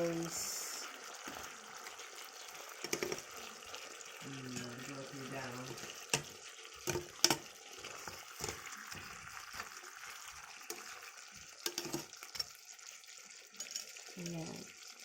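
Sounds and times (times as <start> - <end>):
chicken sizzling in a pan: 0.0 - 15.0
utensil scraping a pan: 2.7 - 3.3, 5.5 - 12.6.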